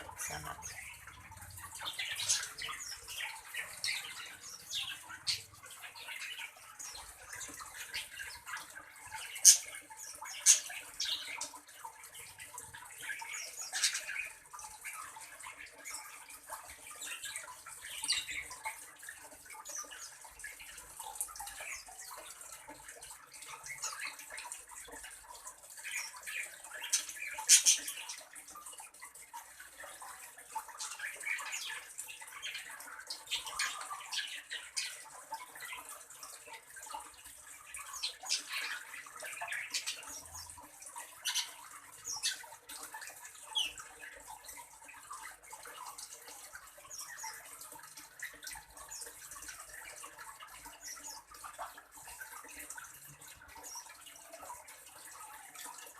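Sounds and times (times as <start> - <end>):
bird chirps and calls: 0.0 - 11.6, 37.7 - 42.6
watery trickle: 0.0 - 55.9.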